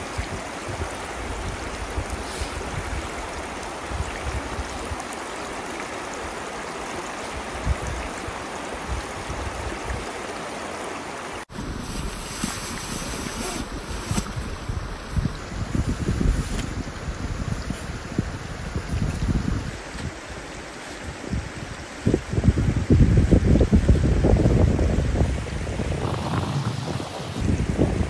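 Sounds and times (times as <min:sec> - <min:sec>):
wind buffeting microphone: 0:00.0 - 0:05.1, 0:07.3 - 0:10.1, 0:13.6 - 0:28.0
river rushing: 0:00.0 - 0:15.7, 0:16.6 - 0:28.0.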